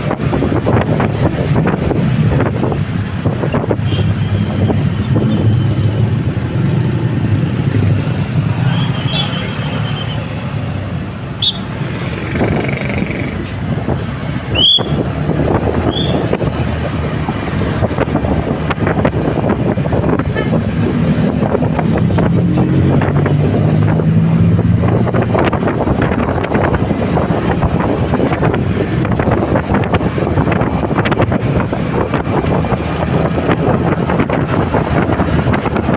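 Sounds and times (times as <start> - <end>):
wind buffeting microphone: 0.0 - 8.7, 10.4 - 35.9
motorcycle engine running: 11.5 - 13.7.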